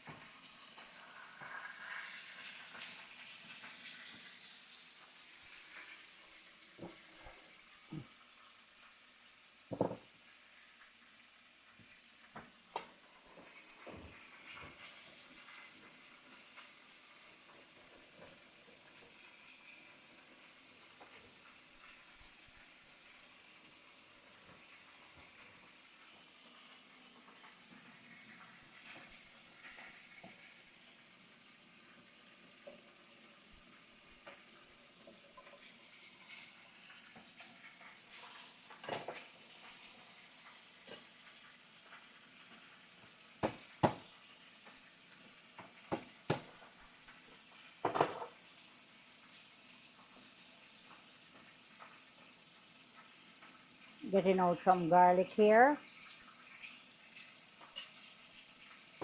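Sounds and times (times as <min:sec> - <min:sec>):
food sizzling on stove: 0:00.0 - 0:59.0
cookware and utensils knocking: 0:09.7 - 0:10.1, 0:43.4 - 0:44.1.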